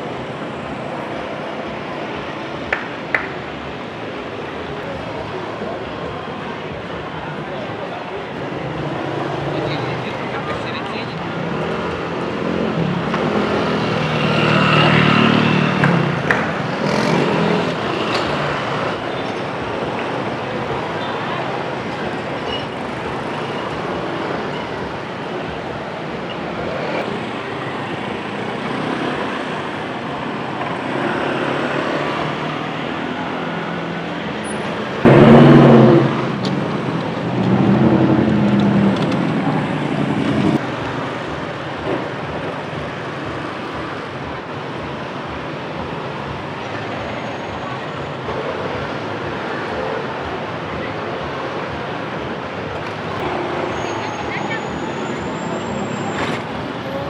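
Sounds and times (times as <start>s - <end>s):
street traffic: 0.0s - 57.0s
motorcycles passing: 8.6s - 57.0s
loud engine passing close: 11.6s - 19.0s, 35.0s - 40.6s.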